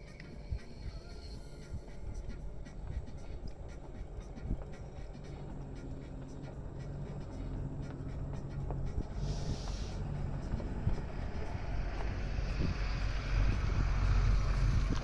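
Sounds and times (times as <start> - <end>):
vehicle engine idling: 0.0 - 15.0
brief hiss: 9.1 - 10.1.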